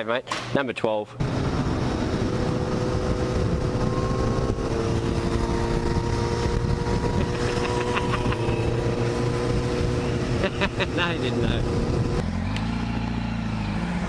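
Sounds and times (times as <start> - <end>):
motorcycle engine running: 1.2 - 14.0.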